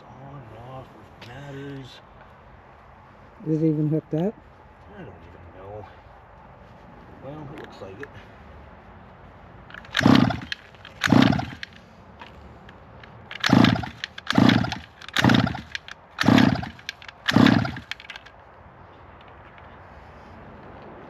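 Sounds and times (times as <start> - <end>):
small engine cranking: 9.7 - 11.8, 13.3 - 18.3.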